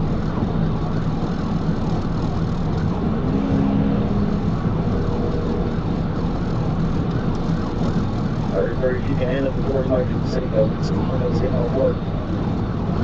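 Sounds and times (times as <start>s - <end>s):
car interior road noise at speed: 0.0s - 13.0s.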